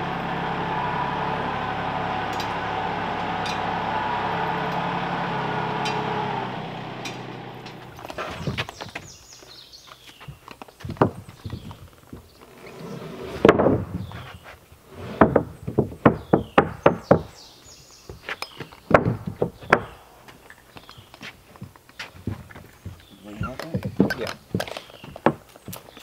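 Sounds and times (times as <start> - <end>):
hammer blows on wooden boards: 15.1 - 17.4, 18.1 - 20.0, 20.9 - 25.9.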